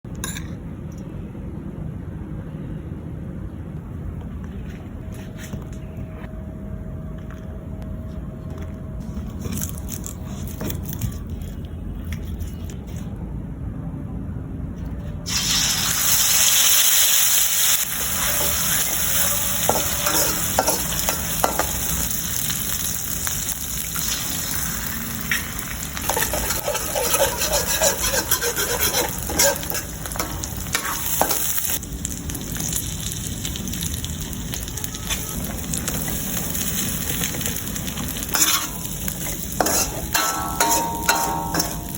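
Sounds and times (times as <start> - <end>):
low steady rumble: 0.1 - 10.3
food sizzling in hot oil: 15.3 - 41.9
spatula scraping pan: 19.6 - 21.7, 26.0 - 31.6, 37.9 - 41.9.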